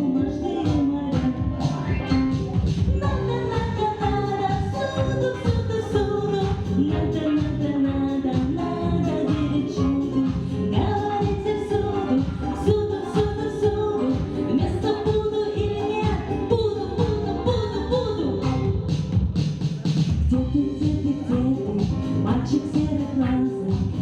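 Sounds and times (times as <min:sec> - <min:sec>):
girl singing: 0:00.0 - 0:18.8, 0:20.3 - 0:24.0
backing track with steady beat: 0:00.0 - 0:24.0.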